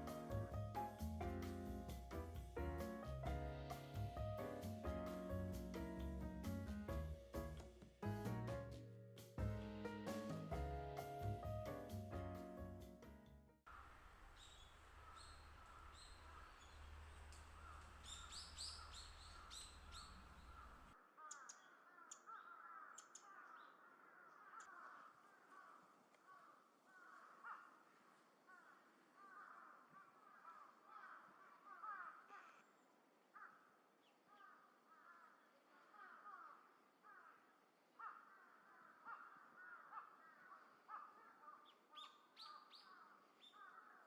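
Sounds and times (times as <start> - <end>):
small birds calling: 14.2 - 27.8, 38.0 - 44.0
crows cawing: 17.5 - 32.6, 33.3 - 41.7, 42.8 - 44.0.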